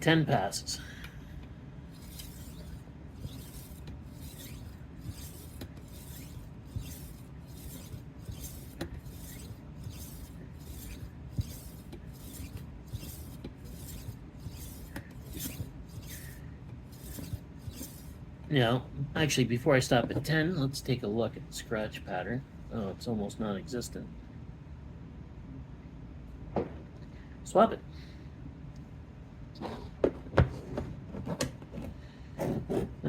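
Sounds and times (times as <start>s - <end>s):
knife sharpener rasping: 1.9s - 18.2s.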